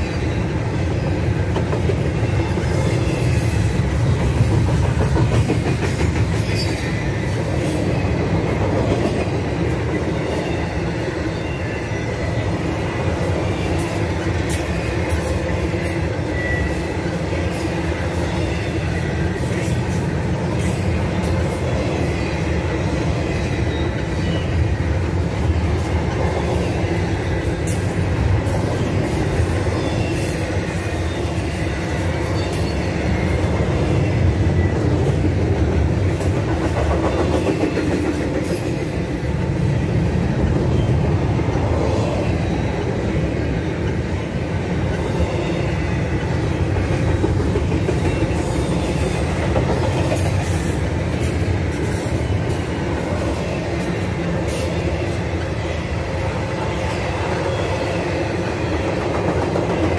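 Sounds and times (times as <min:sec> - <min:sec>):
freight train wheels rumbling: 0:00.0 - 0:59.9
faint high wheel squeal: 0:06.4 - 0:07.8, 0:14.5 - 0:21.2.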